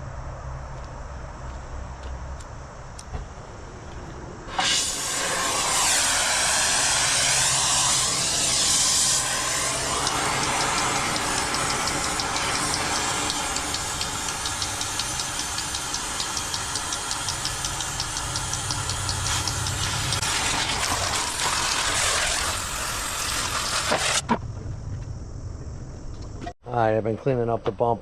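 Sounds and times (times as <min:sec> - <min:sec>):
metal cutting tool: 0:04.5 - 0:24.2
fast regular ticking: 0:07.4 - 0:20.4.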